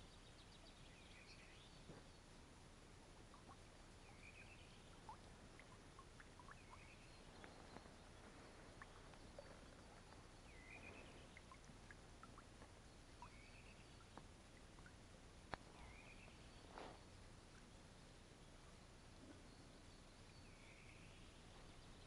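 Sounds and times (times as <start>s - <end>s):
low hiss: 0.0s - 22.0s
faint clicks: 14.0s - 15.7s.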